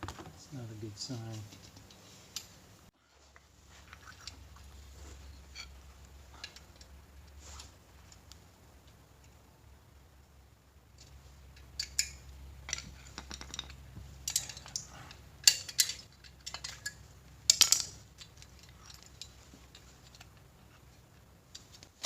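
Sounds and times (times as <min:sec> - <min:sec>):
faint low hum: 0:00.1 - 0:22.0
metal tools clinking: 0:04.3 - 0:06.9, 0:11.5 - 0:20.8.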